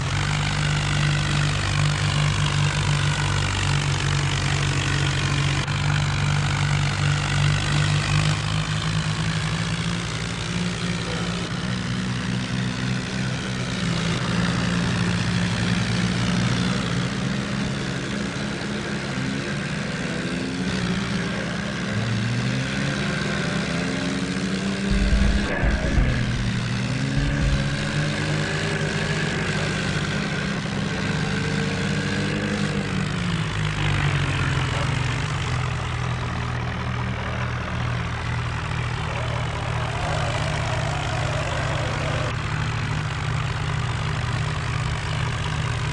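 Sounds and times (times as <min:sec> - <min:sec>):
tractor diesel engine: 0:00.0 - 0:45.9
low rumbling burst: 0:24.9 - 0:28.5.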